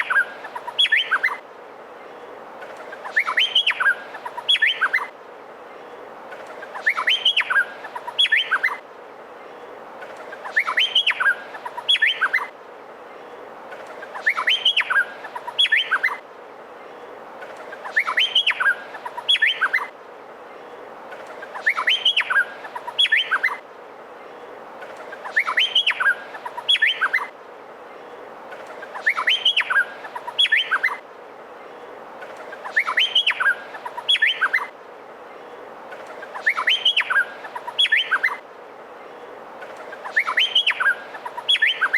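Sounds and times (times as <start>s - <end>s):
bird whistling song: 0.0s - 1.4s, 2.8s - 5.1s, 6.6s - 8.8s, 10.3s - 12.5s, 14.0s - 16.2s, 17.7s - 19.9s, 21.4s - 23.6s, 25.0s - 27.3s, 28.7s - 31.0s, 32.5s - 34.7s, 36.1s - 38.4s, 39.8s - 41.9s
steady hiss: 0.0s - 41.9s.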